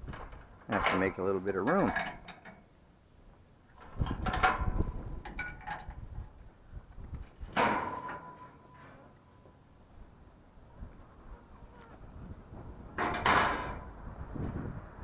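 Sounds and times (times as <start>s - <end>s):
scrap metal clattering: 7.4s - 9.2s, 13.0s - 13.9s.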